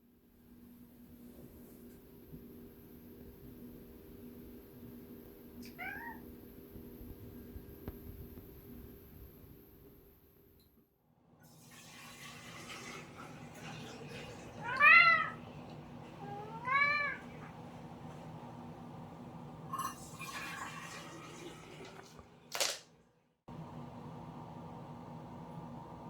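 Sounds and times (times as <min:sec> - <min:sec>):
cat meowing: 0:05.6 - 0:06.3, 0:14.6 - 0:15.4, 0:16.2 - 0:17.4.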